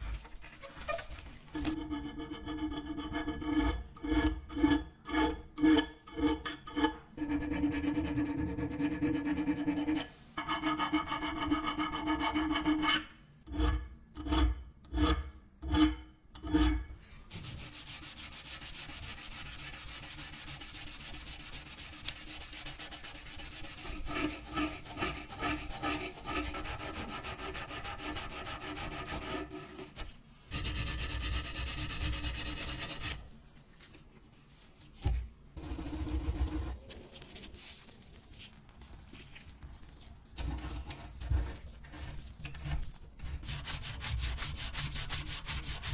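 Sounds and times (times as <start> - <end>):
hand filing and rubbing: 17.3 - 33.2, 40.4 - 45.9.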